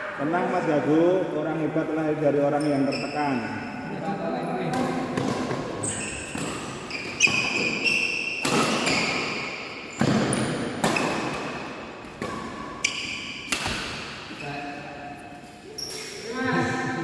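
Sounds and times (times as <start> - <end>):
shoes squeaking on court floor: 1.9 - 16.8
racket hitting shuttlecock: 4.7 - 14.3.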